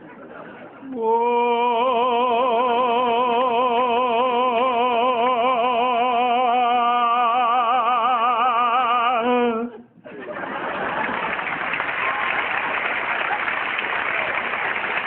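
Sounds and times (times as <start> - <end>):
person singing a long operatic note: 0.9 - 9.9.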